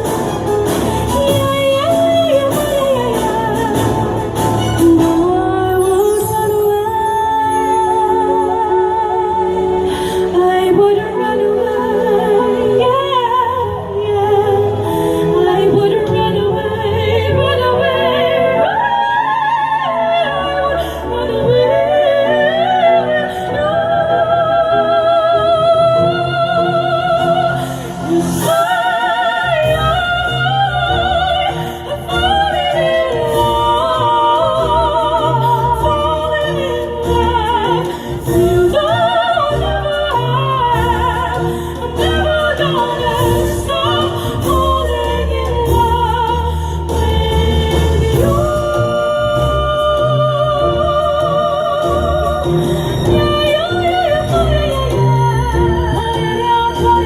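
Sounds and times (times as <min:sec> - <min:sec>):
instrumental backing: 0:00.0 - 0:57.0
two sopranos singing operatically: 0:10.7 - 0:57.0.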